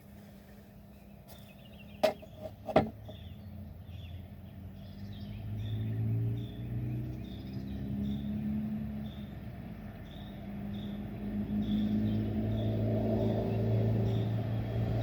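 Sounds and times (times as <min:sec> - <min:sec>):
birds chirping: 0:00.0 - 0:14.7
vehicle engine hum: 0:00.0 - 0:15.0
sharp knocks: 0:02.0 - 0:03.2.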